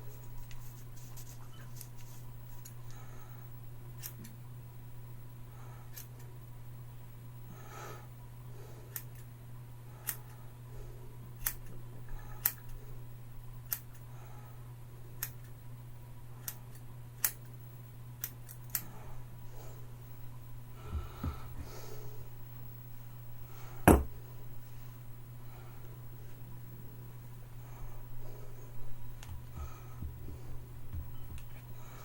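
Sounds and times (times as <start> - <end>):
scissors snipping hair: 4.0 - 4.3, 8.9 - 9.3, 10.0 - 10.3, 13.7 - 14.0, 16.4 - 17.5.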